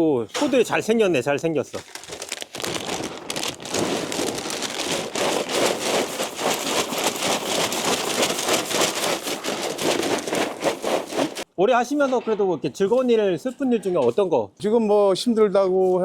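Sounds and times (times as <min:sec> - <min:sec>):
cattle eating rustling hay: 0:02.0 - 0:11.5.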